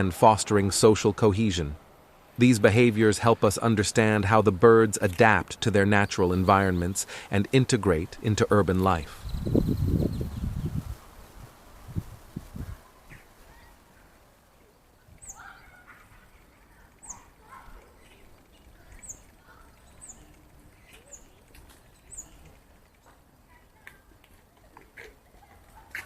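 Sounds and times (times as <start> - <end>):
starlings chattering: 2.4 - 11.0, 14.8 - 23.2
starlings high chirps: 9.0 - 10.8.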